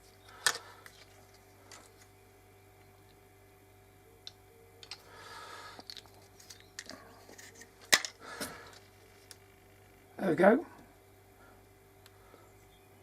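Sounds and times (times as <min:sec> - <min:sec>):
hands handling small object: 0:00.3 - 0:02.2, 0:04.2 - 0:05.1, 0:05.7 - 0:09.4.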